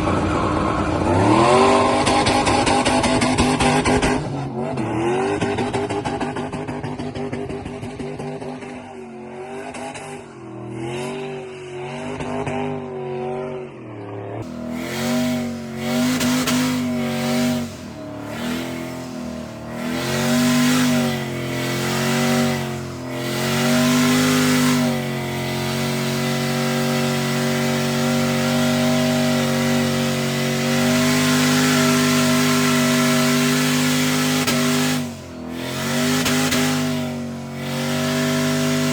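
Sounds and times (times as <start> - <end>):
truck engine revving: 14.4 - 38.9.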